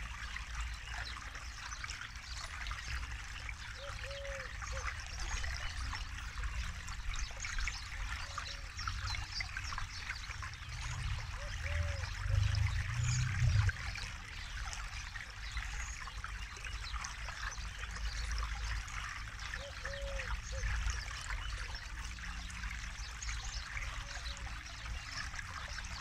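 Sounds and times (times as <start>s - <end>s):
river flowing over stones: 0.0s - 26.0s
low rumble: 10.5s - 14.2s.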